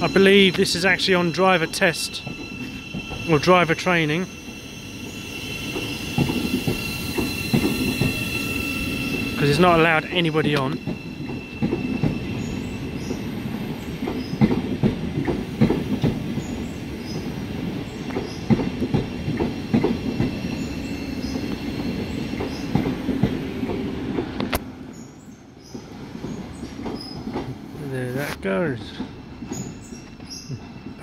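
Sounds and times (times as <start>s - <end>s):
train wheels clattering over joints: 0.0s - 24.6s, 25.6s - 31.0s.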